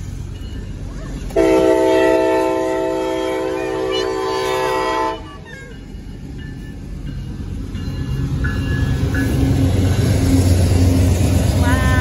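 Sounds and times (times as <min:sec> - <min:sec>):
locomotive engine and rail rumble: 0:00.0 - 0:12.0
train horn blast: 0:01.4 - 0:05.3, 0:11.6 - 0:12.0.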